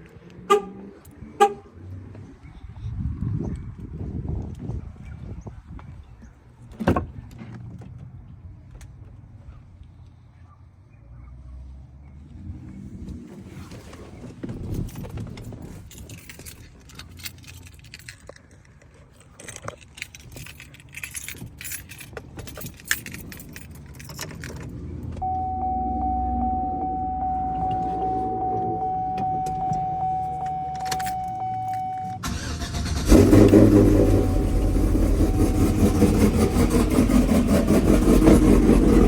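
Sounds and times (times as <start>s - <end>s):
keys jangling: 14.6s - 25.0s, 30.5s - 31.9s
steady electronic tone: 25.2s - 32.2s
low hum: 25.2s - 32.4s, 33.0s - 39.0s.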